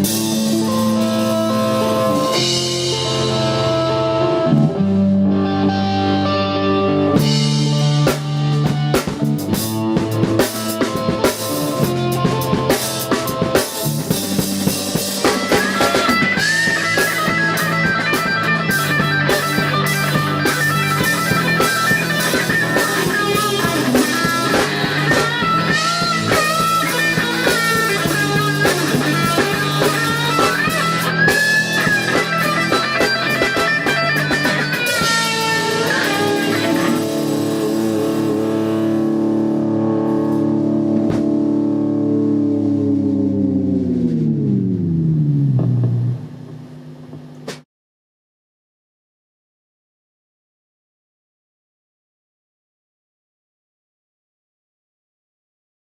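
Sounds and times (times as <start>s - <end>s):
drum kit playing: 0.0s - 42.3s, 45.4s - 47.6s
guitar chord ringing: 0.0s - 46.6s
bass guitar: 0.0s - 47.6s
electric guitar lead lines: 0.0s - 47.6s.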